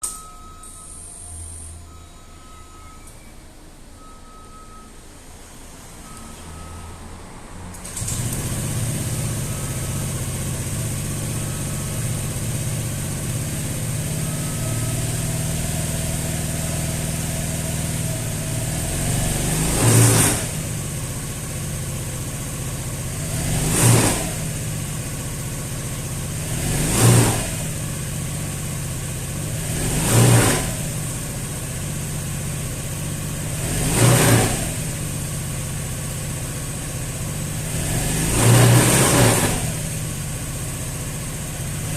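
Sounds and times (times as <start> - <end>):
scooter engine idling: 7.8 - 19.0, 20.4 - 23.4, 24.3 - 26.7, 27.5 - 29.8, 30.7 - 33.7, 34.7 - 37.8, 39.6 - 41.9
scooter engine revving blips: 7.8 - 41.9.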